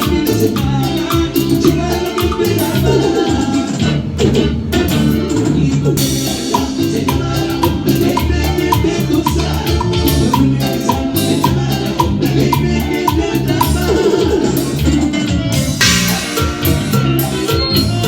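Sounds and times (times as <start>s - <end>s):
latin dance band playing: 0.0s - 18.0s
short high note repeating: 15.8s - 18.0s.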